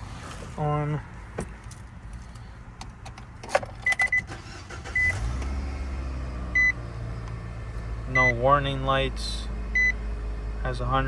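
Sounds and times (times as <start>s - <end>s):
van engine starting and idling: 2.5s - 11.0s.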